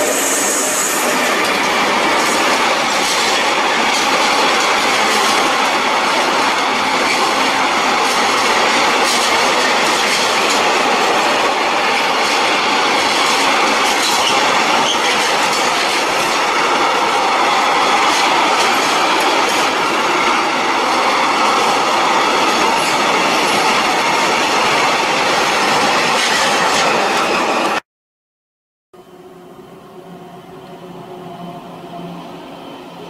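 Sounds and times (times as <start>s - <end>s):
freight train wagons rolling: 0.2s - 16.5s.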